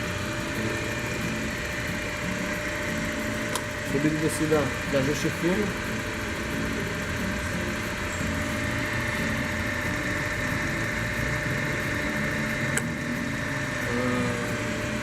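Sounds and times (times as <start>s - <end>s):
drill mechanical hum: 0.0s - 15.0s.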